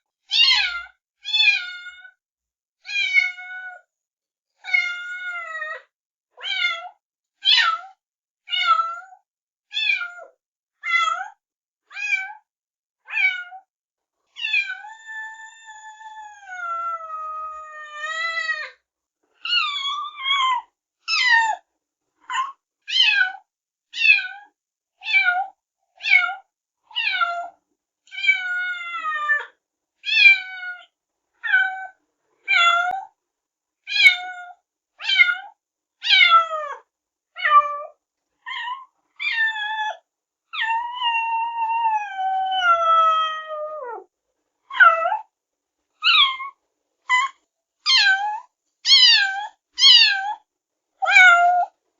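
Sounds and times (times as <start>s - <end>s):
kittens meowing: 40.6s - 44.0s, 46.0s - 50.4s, 51.0s - 51.8s.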